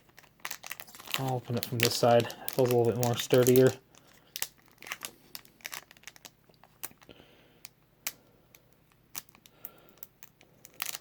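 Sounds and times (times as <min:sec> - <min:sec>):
foil wrapper crinkling: 0:00.0 - 0:07.2, 0:08.9 - 0:11.0.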